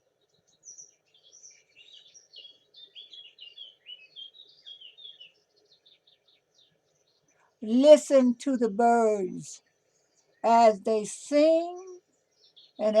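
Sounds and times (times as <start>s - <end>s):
songbird chorus chirping: 0.0s - 13.0s
soft background hiss: 6.6s - 13.0s.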